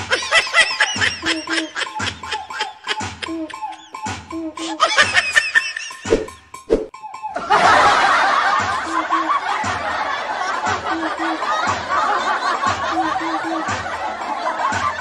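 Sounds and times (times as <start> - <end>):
baby laughing: 0.0 - 6.1, 8.4 - 9.5.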